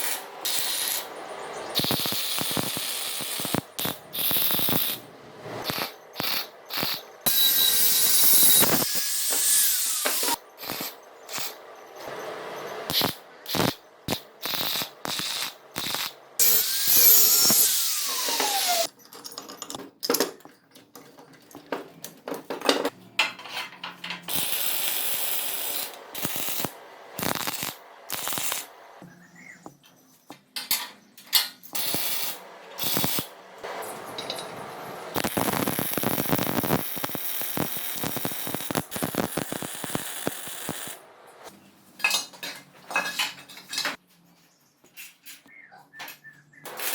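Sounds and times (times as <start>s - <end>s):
power tool whine: 4.2s - 13.7s, 14.5s - 18.9s, 31.8s - 41.5s
sharp clicks and metal knocks: 18.3s - 24.4s
steady rushing noise: 25.8s - 29.0s.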